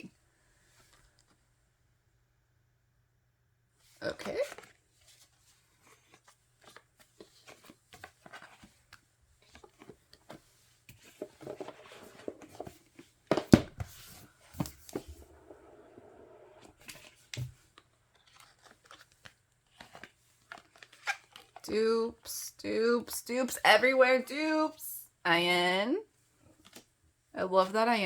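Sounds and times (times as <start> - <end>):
paper and plastic rustling: 3.9 - 15.6, 16.6 - 21.7.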